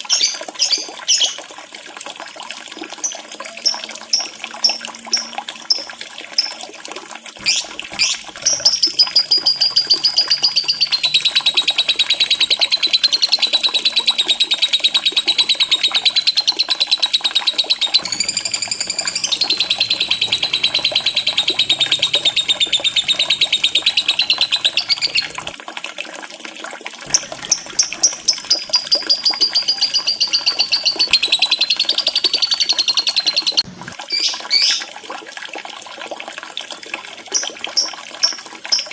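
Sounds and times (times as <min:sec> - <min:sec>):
trickling water: 0:00.0 - 0:38.9
lovebird chattering trill: 0:07.4 - 0:25.5, 0:27.1 - 0:33.6.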